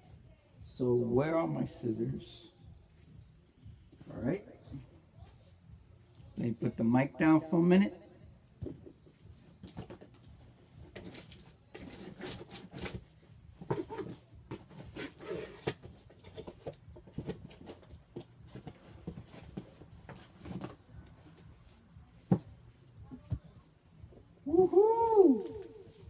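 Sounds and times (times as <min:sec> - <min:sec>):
cardboard box being opened: 0:10.9 - 0:17.9.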